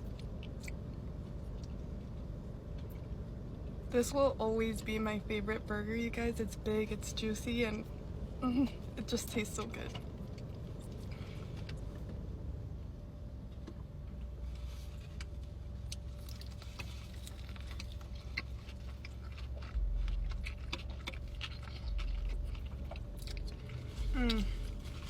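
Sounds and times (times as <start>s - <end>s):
low rumbles: 0.0s - 25.0s
steady low hum: 0.0s - 25.0s
wet chewing clicks: 15.1s - 25.0s.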